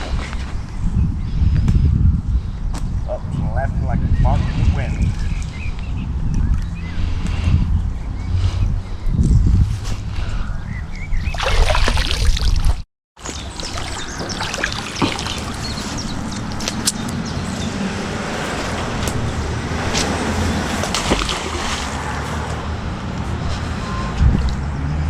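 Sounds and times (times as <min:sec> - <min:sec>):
water sloshing and trickling: 0:11.2 - 0:16.8, 0:20.5 - 0:22.6.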